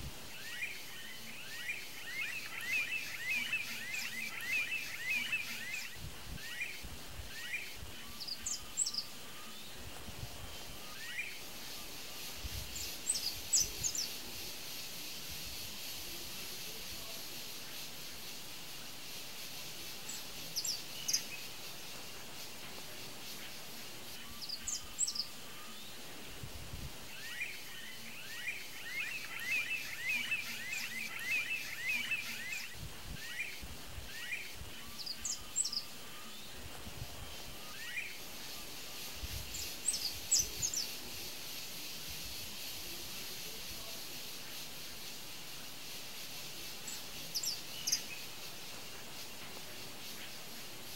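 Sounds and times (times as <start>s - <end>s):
outdoor hiss: 0.0s - 50.9s
high bird chirps: 0.3s - 9.7s, 19.9s - 22.0s, 27.2s - 36.4s.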